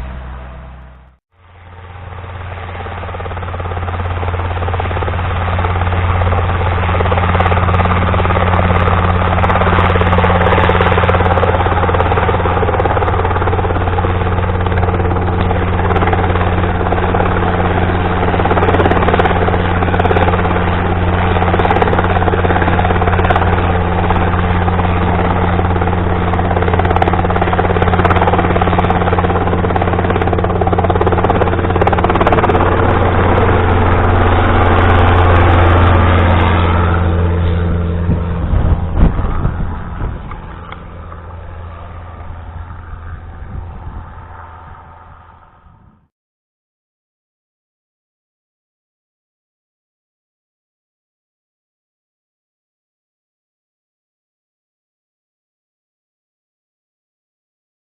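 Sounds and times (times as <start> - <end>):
helicopter rotor and engine drone: 0.0 - 46.1.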